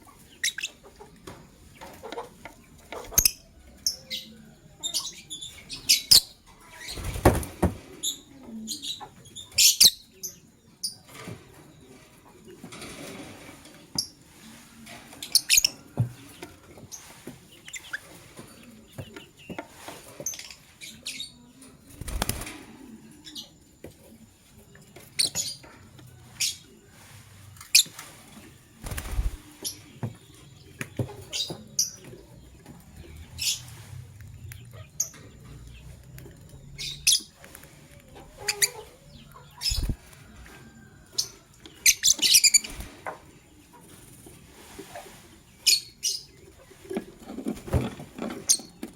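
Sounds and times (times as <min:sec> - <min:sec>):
wings flapping: 0:06.9 - 0:07.9, 0:21.9 - 0:22.8, 0:27.8 - 0:29.8, 0:39.6 - 0:40.3, 0:42.4 - 0:43.2
birds chirping sharply: 0:38.4 - 0:40.1.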